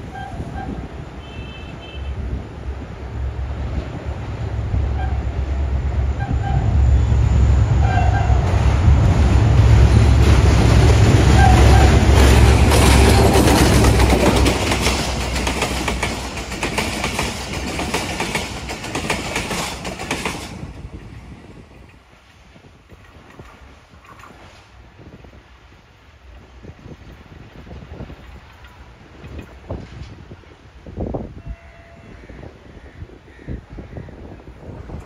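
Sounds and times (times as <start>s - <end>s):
diesel locomotive engine rumble: 0.0s - 35.0s
wheels clattering over rail joints: 8.1s - 22.0s.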